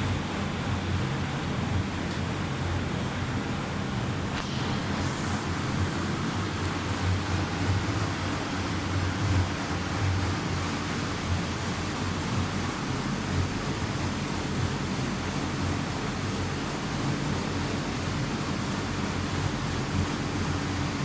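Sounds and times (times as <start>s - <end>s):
low pump hum: 0.0s - 21.0s
dishwasher water spraying: 4.3s - 14.6s.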